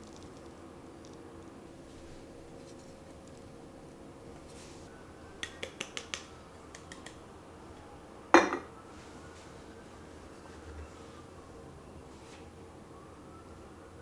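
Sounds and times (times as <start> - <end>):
kitchenware clinking: 8.3 - 8.7
cup set down on hard surface: 8.4 - 8.7.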